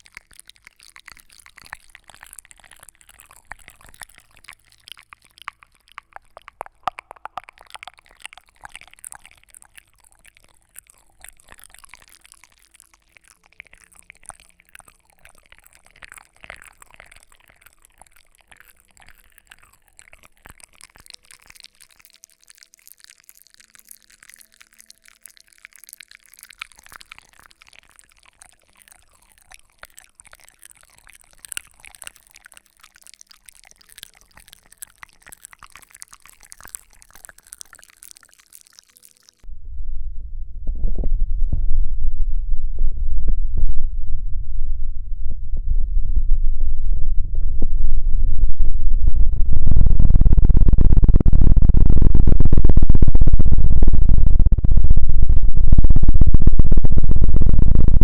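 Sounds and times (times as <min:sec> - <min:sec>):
soft crackling and small clicks: 0:00.0 - 0:39.5.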